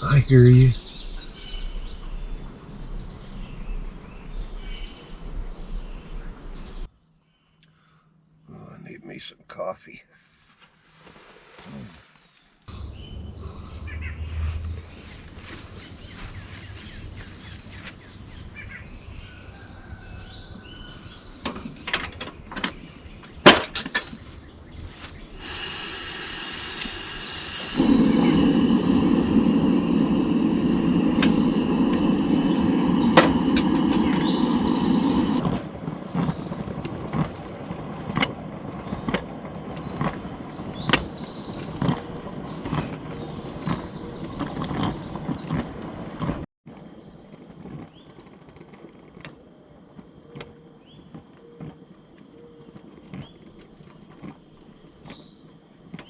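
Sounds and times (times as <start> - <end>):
loud steady rushing noise: 0.0 - 6.9, 12.7 - 20.3, 21.4 - 37.0
small birds chirping: 0.0 - 6.9, 12.7 - 36.7, 38.8 - 46.1.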